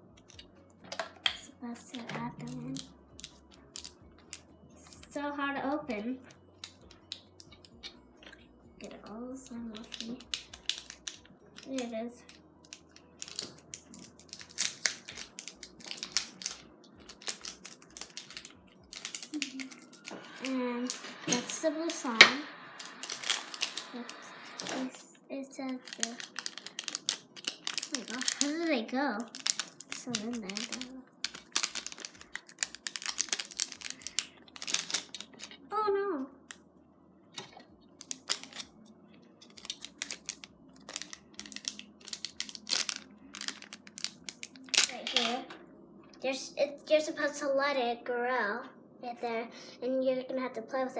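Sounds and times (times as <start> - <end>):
crackles and sharp clicks: 9.7 - 25.0, 25.6 - 35.6, 37.4 - 46.2.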